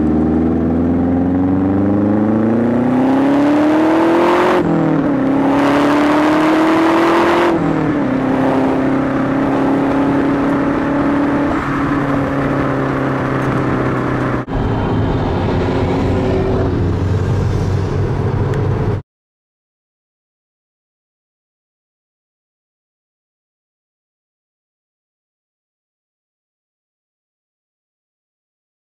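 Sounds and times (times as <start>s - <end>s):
car engine drone: 0.0s - 19.0s.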